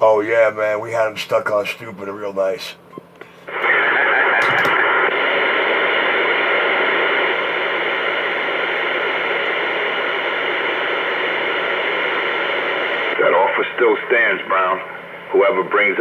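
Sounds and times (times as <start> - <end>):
radio static hiss: 3.5 - 16.0.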